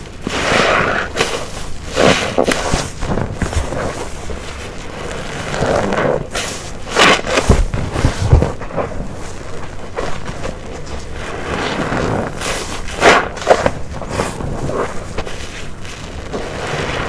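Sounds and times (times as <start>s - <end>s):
wet sponge squelching: 0.0s - 17.0s.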